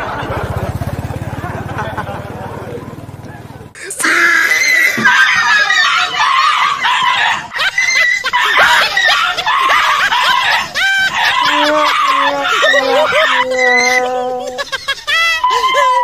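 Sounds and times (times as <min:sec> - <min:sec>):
high-pitched shrieking voices: 0:03.8 - 0:16.0.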